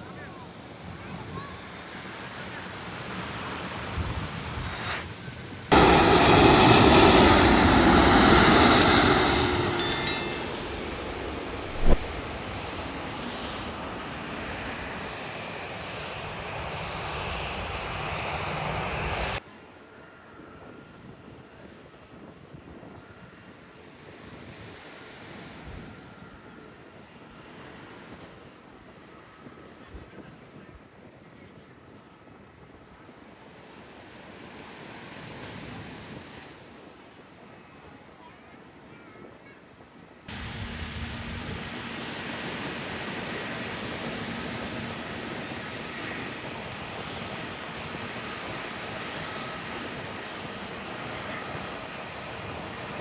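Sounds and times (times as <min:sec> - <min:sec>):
jet airliner passing overhead: 0:00.5 - 0:19.4, 0:40.3 - 0:53.0.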